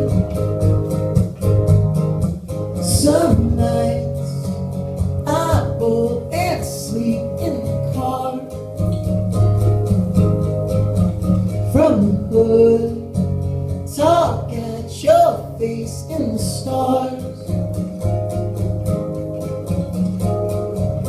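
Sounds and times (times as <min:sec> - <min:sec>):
acoustic guitar strumming: 0:00.0 - 0:21.0
man singing: 0:02.8 - 0:04.6, 0:05.2 - 0:08.8, 0:11.7 - 0:13.2, 0:13.8 - 0:17.7.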